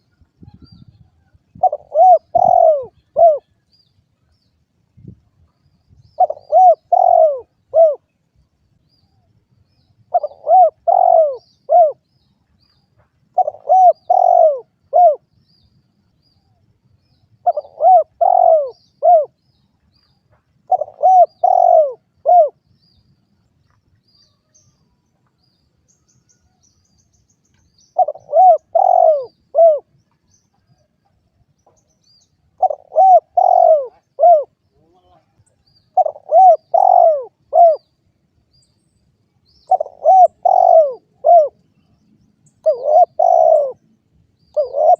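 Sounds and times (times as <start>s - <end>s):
dove cooing: 1.5s - 3.5s, 6.2s - 8.1s, 10.1s - 12.0s, 13.4s - 15.2s, 17.4s - 19.4s, 20.6s - 22.6s, 28.0s - 29.9s, 32.6s - 35.3s, 35.9s - 37.9s, 39.6s - 41.6s, 42.6s - 43.8s, 44.5s - 44.9s.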